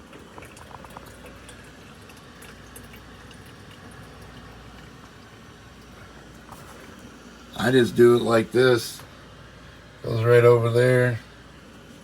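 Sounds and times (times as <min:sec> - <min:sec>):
water trickling into a tank: 0:00.0 - 0:08.3.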